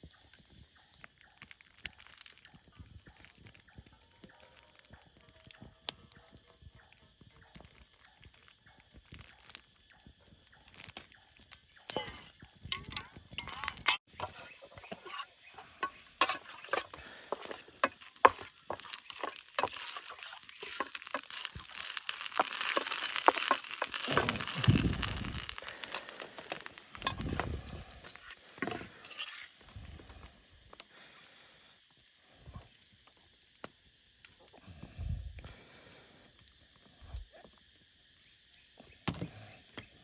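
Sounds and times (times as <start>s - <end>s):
crackling and rustling: 0.0s - 30.9s
hiss: 14.9s - 40.0s
low rumbles: 24.2s - 25.9s.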